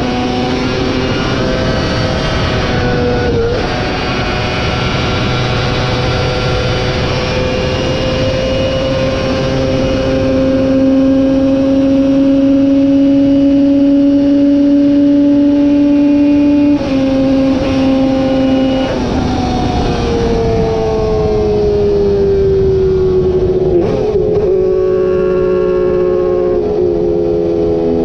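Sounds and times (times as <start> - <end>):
motorbike engine revving: 0.0 - 28.0.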